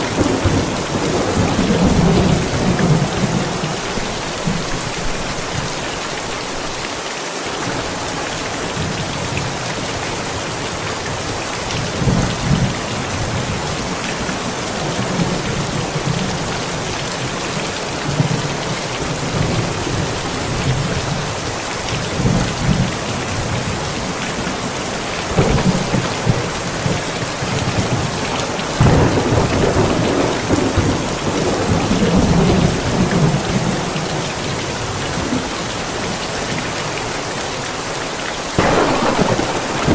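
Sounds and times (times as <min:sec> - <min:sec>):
thunder rumbling: 0:00.0 - 0:04.9, 0:25.0 - 0:34.1, 0:38.6 - 0:39.9
heavy rain: 0:00.0 - 0:39.9.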